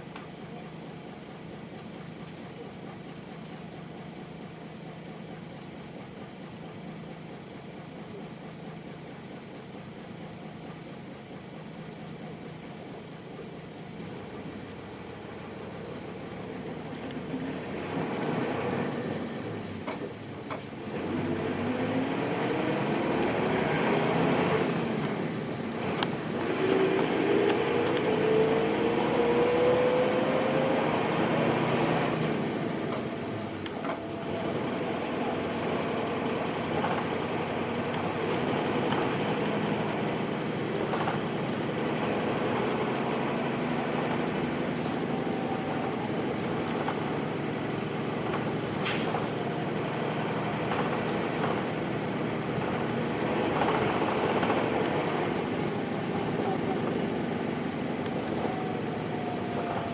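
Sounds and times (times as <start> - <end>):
bus diesel engine accelerating: 0.0 - 59.9.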